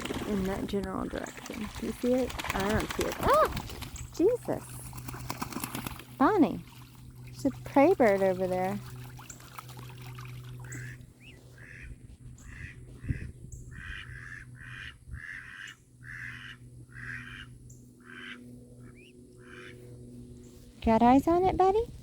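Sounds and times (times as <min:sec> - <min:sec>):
steady low hum: 0:00.0 - 0:22.0
ducks quacking: 0:10.6 - 0:19.9.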